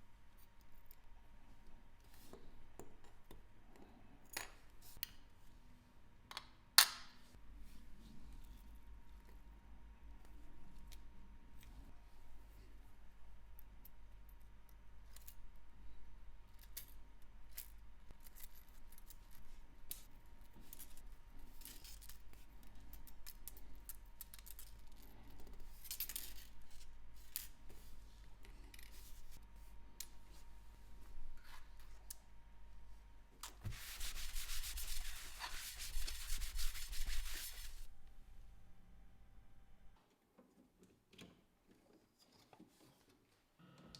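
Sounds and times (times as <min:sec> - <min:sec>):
rubbing or brushing: 0:33.6 - 0:37.9.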